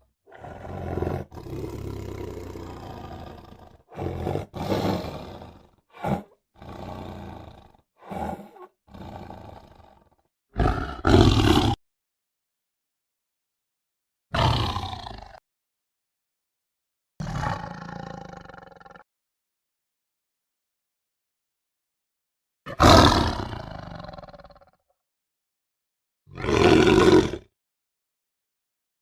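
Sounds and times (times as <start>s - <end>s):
tiger roaring: 0.3s - 11.8s, 14.4s - 15.4s, 17.2s - 19.0s, 22.7s - 24.8s, 26.3s - 27.5s.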